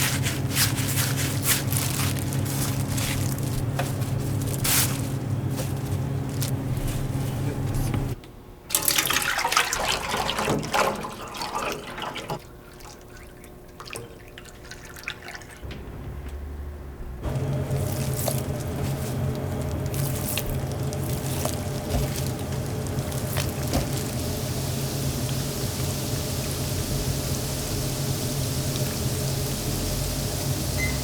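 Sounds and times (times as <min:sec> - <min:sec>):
low machine hum: 0:00.0 - 0:31.0
liquid splashing: 0:08.7 - 0:15.7, 0:17.2 - 0:31.0
liquid crackling and dripping: 0:08.7 - 0:16.4, 0:17.2 - 0:31.0.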